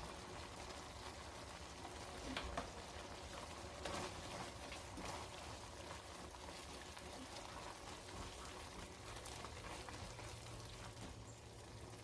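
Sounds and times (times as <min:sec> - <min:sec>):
food sizzling in a pan: 0:00.0 - 0:11.4
small crackles: 0:00.0 - 0:12.0.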